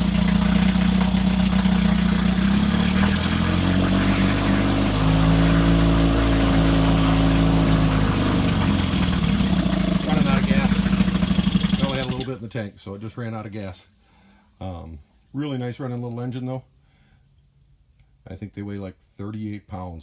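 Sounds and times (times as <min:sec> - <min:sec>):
outboard engine running: 0:00.0 - 0:12.4.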